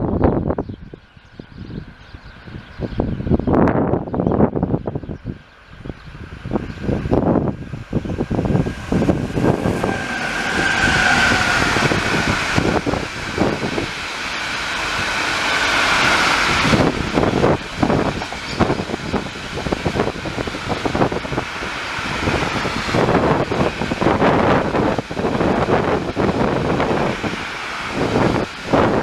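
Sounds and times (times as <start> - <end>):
freight train rolling past: 0.0 - 29.0
steel wheels on rail: 4.5 - 29.0
high whine: 5.8 - 15.5.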